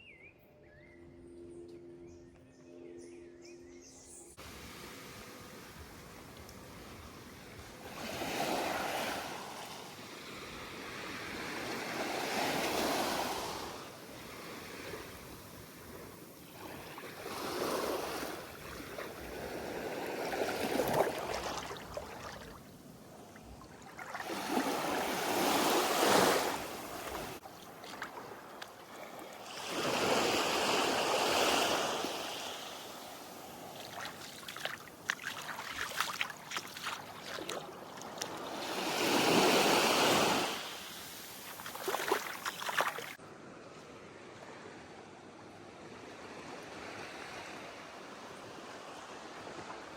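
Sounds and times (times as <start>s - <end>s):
sea waves washing in: 4.4s - 22.9s, 23.6s - 43.2s.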